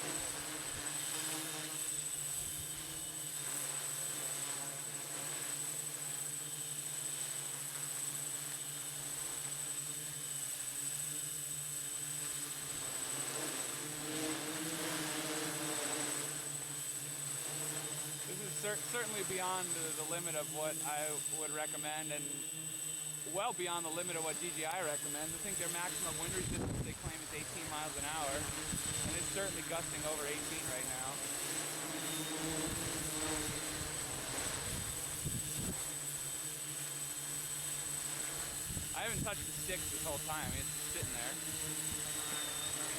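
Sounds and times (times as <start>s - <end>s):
drone motors buzzing: 0.0s - 42.9s
wind on microphone: 26.2s - 29.4s
wind buffeting microphone: 26.3s - 27.1s.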